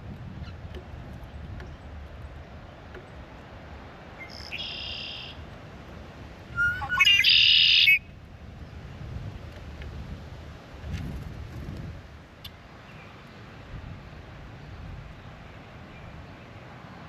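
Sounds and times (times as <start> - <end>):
grackle calls: 4.2 - 5.4, 6.5 - 8.1.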